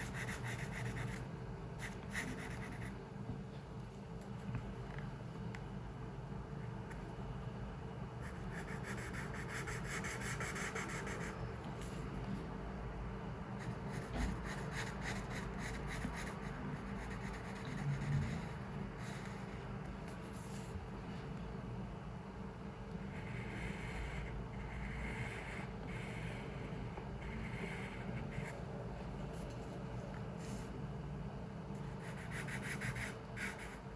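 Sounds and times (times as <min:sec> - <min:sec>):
pencil scratching on paper: 0:00.0 - 0:03.0, 0:08.2 - 0:11.4, 0:13.6 - 0:20.8, 0:23.1 - 0:28.7, 0:32.0 - 0:33.9
low room hum: 0:00.0 - 0:33.9.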